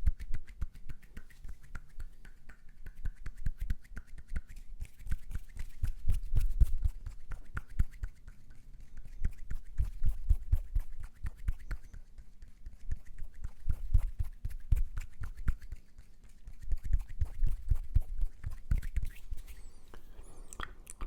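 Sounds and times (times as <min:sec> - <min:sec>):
mouth clicks and pops: 0:20.4 - 0:21.0.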